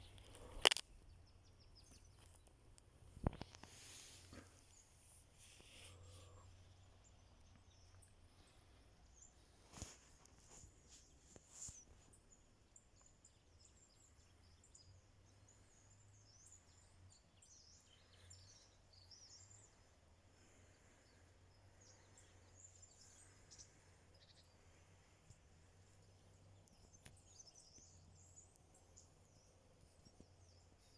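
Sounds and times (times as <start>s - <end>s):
faint high bird chirps: 20.6s - 30.9s.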